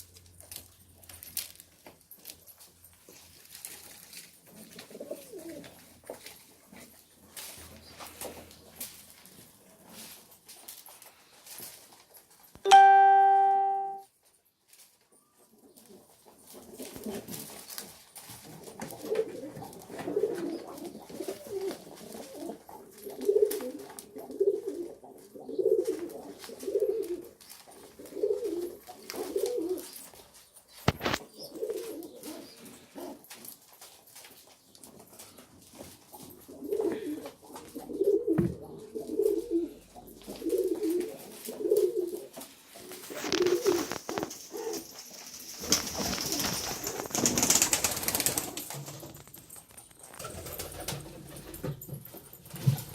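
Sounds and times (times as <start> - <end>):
pigeons cooing: 4.6 - 5.9, 18.6 - 30.0, 31.0 - 33.3, 36.2 - 47.4
loud held tone: 12.7 - 14.0.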